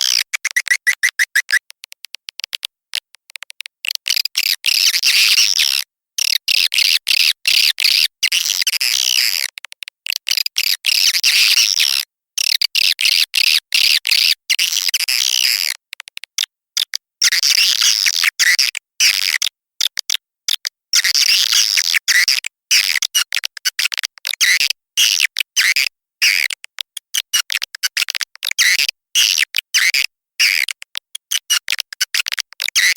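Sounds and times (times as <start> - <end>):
swiftlet high chirping: 0.2 - 1.6.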